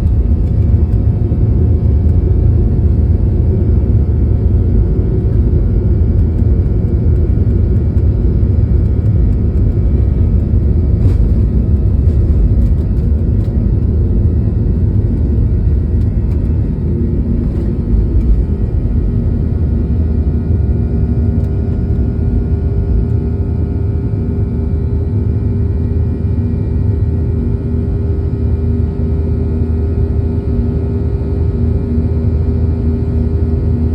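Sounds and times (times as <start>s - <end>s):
jet engines rumbling: 0.0s - 25.2s.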